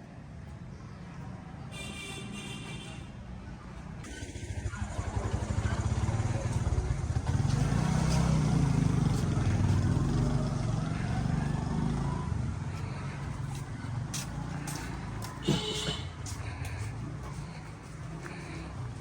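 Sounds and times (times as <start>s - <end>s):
vehicle engine pulsing rumble: 3.9s - 19.0s.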